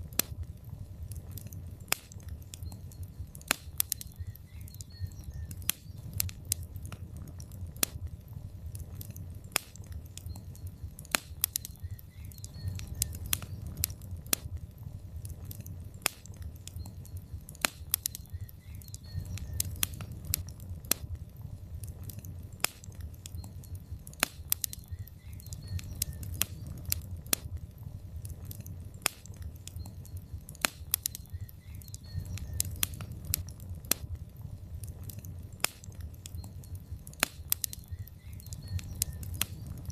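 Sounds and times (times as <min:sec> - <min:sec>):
fire crackles and pops: 0:00.0 - 0:39.9
low rumble of flames: 0:00.0 - 0:39.9.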